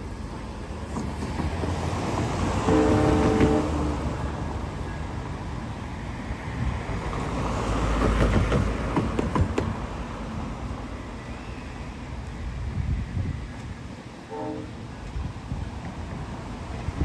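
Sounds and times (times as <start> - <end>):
train passing rumble: 0.0 - 17.0.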